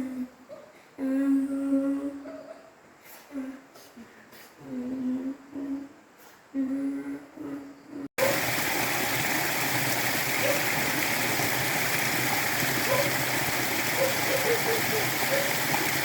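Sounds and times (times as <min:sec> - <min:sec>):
person humming a tune: 0:04.6 - 0:05.9, 0:06.6 - 0:08.1
stream water rushing: 0:08.2 - 0:16.0.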